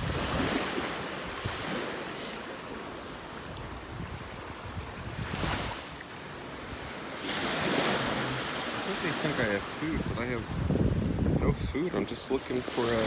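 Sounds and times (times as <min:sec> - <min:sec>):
wind buffeting microphone: 0:00.0 - 0:01.8, 0:03.4 - 0:07.0, 0:09.3 - 0:13.0
ocean surf on beach: 0:00.0 - 0:13.0.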